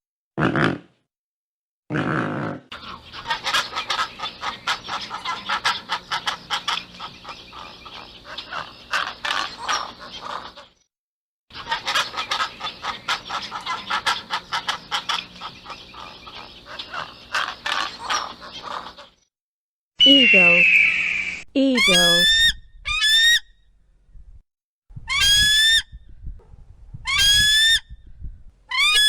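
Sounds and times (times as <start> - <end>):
pelicans calling: 2.8 - 10.6, 11.6 - 19.1, 21.8 - 23.4.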